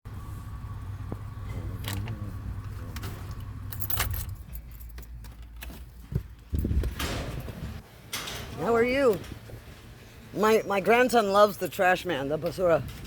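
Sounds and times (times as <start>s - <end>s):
vehicle engine running: 0.1s - 5.2s
keys jangling: 3.0s - 5.9s.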